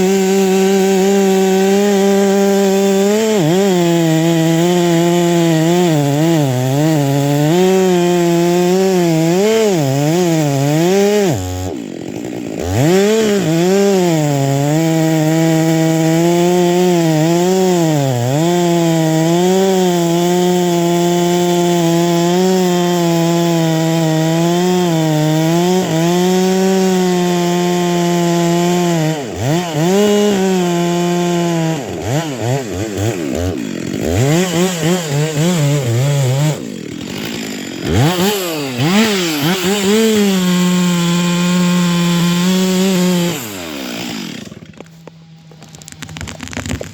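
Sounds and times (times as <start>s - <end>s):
chainsaw cutting wood: 0.0s - 46.9s.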